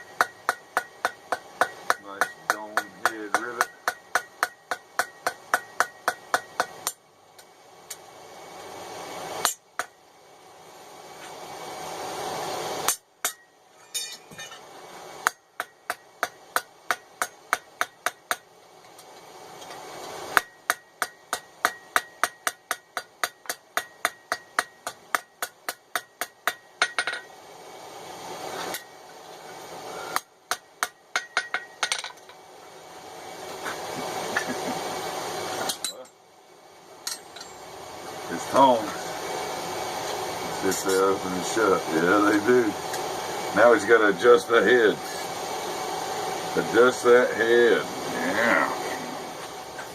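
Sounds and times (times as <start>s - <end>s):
hammer ringing on anvil: 0.0s - 7.0s, 12.9s - 14.6s, 20.4s - 27.3s, 30.5s - 32.1s.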